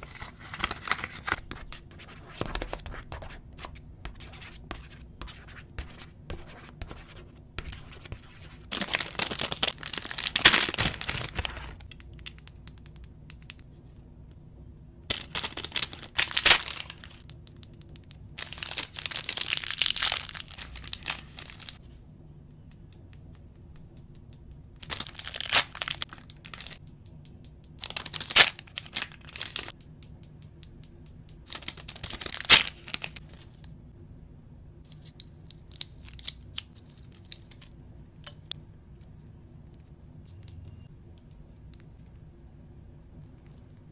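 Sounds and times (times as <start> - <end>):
packaging tearing and crinkling: 8.7 - 12.4, 15.1 - 17.2, 18.4 - 21.8, 24.8 - 26.8, 27.8 - 29.7, 31.5 - 33.6.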